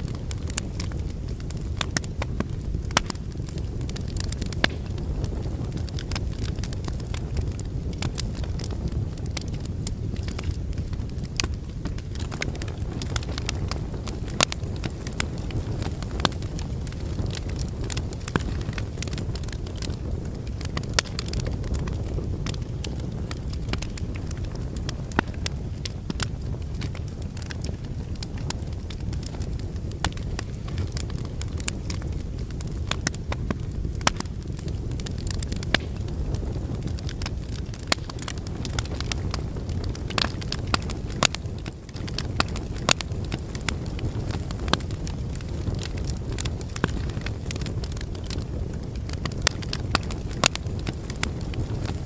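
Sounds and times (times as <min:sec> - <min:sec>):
fire crackling and popping: 0:00.0 - 0:52.0
fire rumbling in a fireplace: 0:00.0 - 0:52.0.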